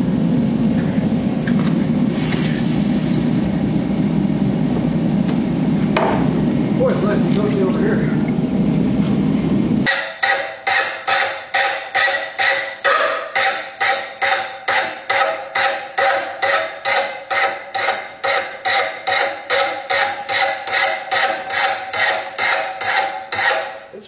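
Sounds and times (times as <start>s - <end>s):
anvil ringing: 9.9s - 22.2s
hammer striking metal on anvil: 9.9s - 23.8s.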